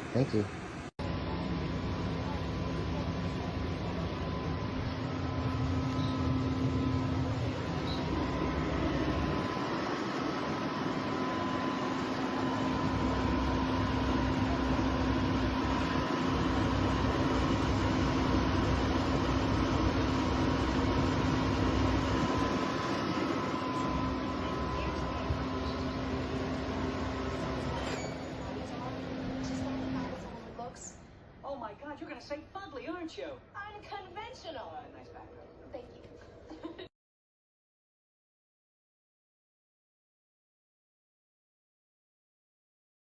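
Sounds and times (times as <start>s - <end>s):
air conditioner fan whoosh: 0.0s - 32.4s.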